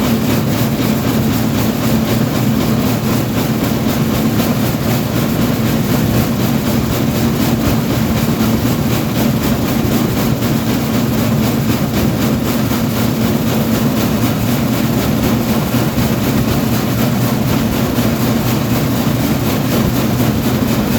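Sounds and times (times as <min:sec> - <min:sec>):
train rumble and rattle: 0:00.0 - 0:20.9.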